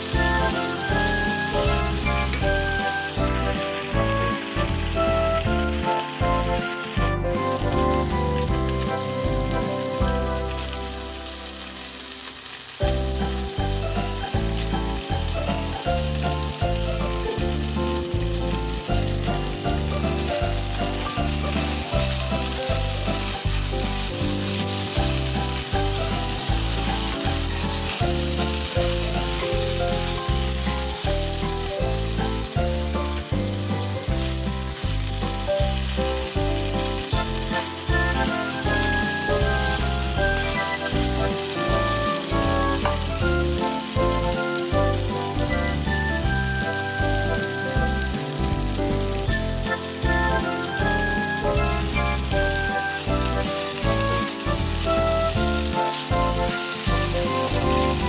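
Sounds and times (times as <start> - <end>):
background music with steady beat: 0.0 - 11.1
food sizzling in a pan: 0.0 - 58.0.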